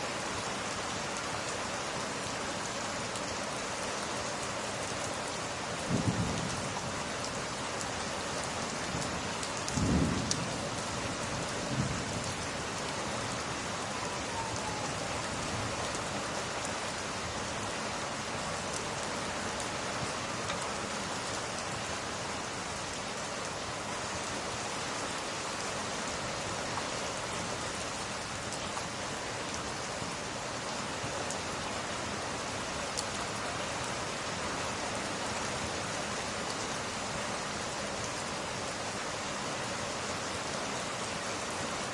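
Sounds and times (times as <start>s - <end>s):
heavy rain: 0.0s - 41.9s
thunder rumble: 5.9s - 6.8s, 9.7s - 12.4s.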